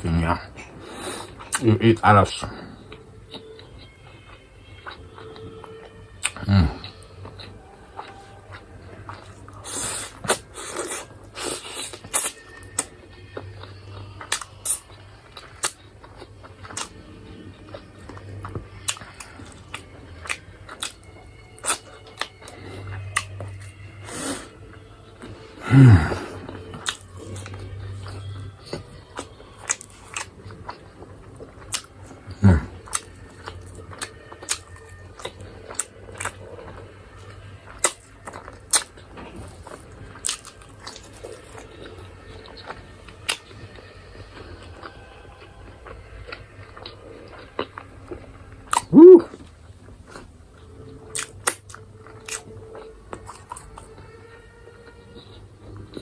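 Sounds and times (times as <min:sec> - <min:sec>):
person chewing food: 0:00.0 - 0:56.0
low throat sound falling in pitch: 0:48.9 - 0:49.3.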